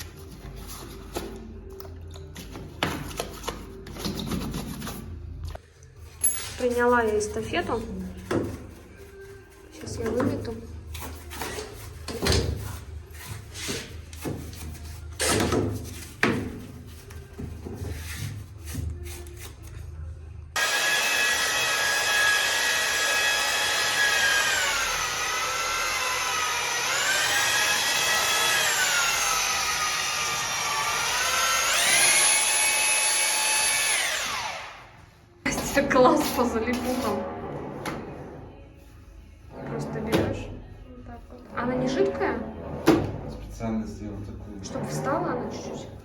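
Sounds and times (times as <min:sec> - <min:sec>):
electric drill motor running: 0:20.6 - 0:35.0.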